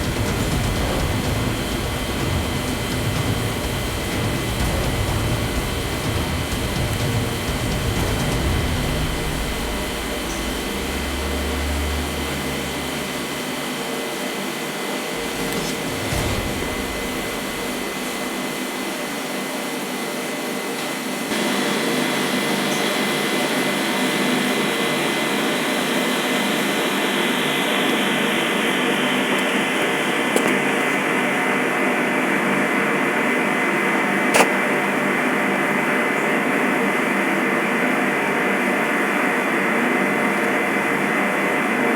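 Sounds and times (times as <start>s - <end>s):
machine drone with high whine: 0.0s - 34.7s.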